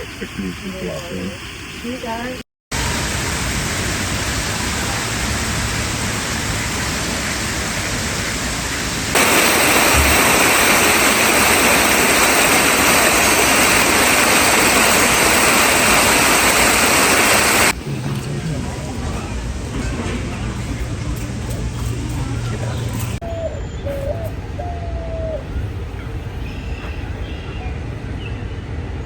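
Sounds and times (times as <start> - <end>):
falling water rushing: 0.0 - 21.9.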